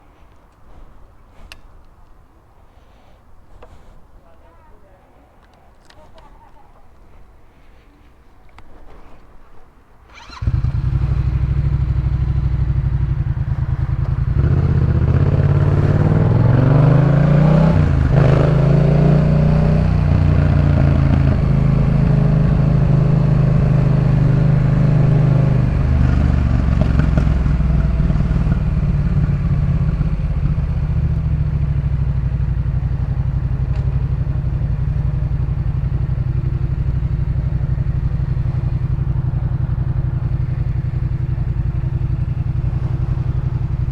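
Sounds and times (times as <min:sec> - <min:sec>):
motorcycle engine idling and revving: 0:10.1 - 0:43.9.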